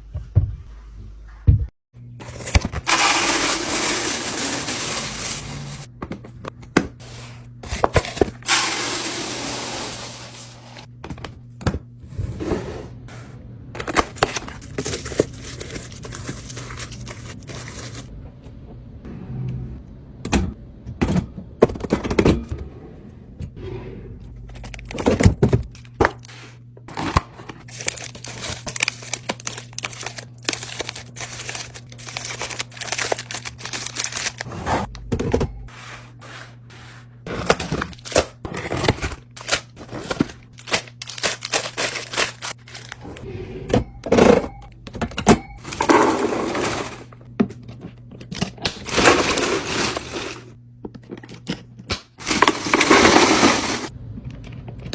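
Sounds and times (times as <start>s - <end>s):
packaging rustling and crinkling: 27.0s - 34.5s, 39.4s - 43.0s.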